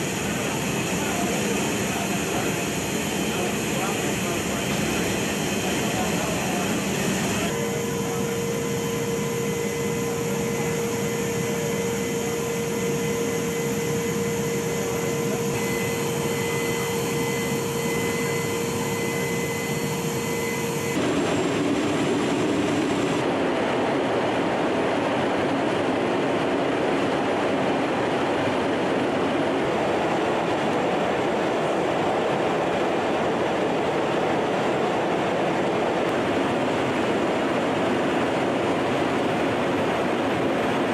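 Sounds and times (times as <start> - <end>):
aircraft engines droning: 0.0 - 40.9.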